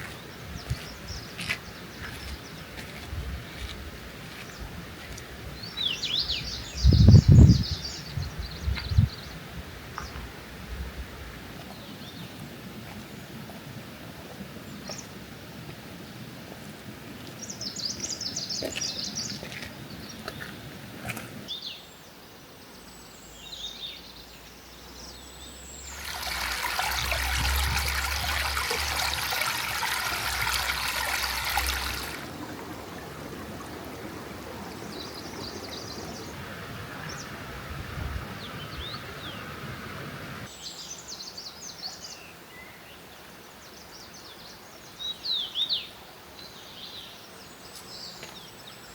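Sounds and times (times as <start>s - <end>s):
small birds chirping: 0.0s - 9.4s, 17.2s - 20.7s
rush of running water: 25.7s - 40.6s.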